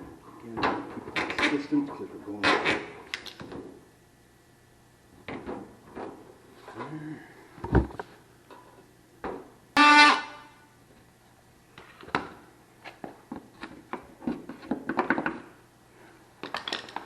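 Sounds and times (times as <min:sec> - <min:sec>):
short horn-like tone: 0:09.8 - 0:10.7
knocks and clicks of hand work: 0:13.0 - 0:15.5.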